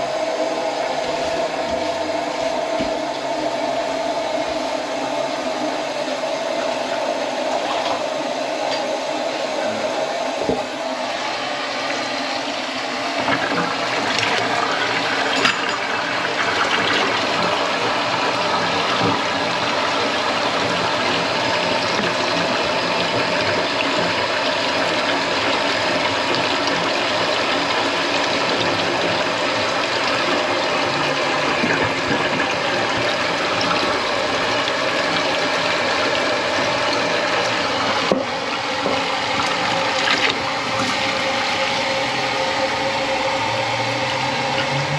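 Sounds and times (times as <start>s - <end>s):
water running into sink: 0.0s - 44.9s.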